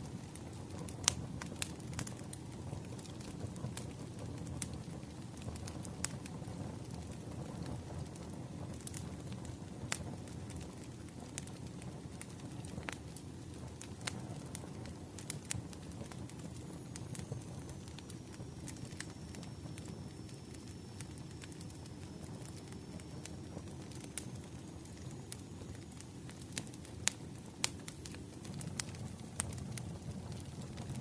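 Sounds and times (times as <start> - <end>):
wood fire crackling and popping: 0.0 - 31.0.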